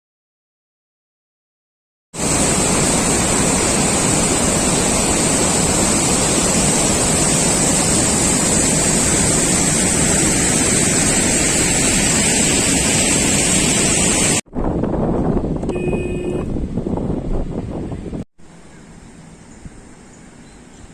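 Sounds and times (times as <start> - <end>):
water rushing from spillway: 2.2 - 14.4.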